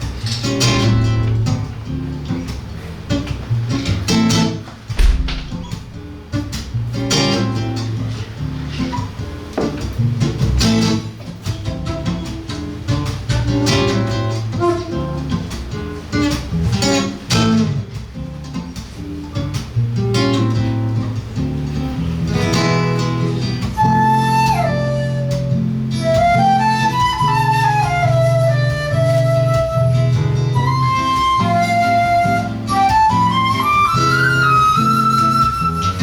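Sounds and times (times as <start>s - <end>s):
guitar plucked chords: 0.0s - 36.0s
flute melody with sliding notes: 0.4s - 2.5s, 11.7s - 16.4s, 23.7s - 36.0s.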